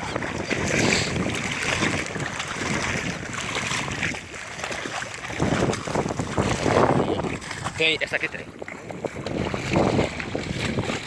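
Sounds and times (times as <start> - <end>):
rushing water: 0.0 - 11.0
wind buffeting microphone: 0.0 - 11.0.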